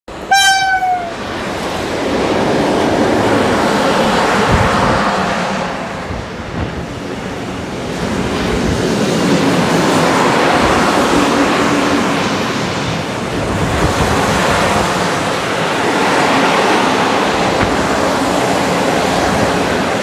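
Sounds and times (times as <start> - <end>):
freight train wheels rumbling: 0.1 - 20.0.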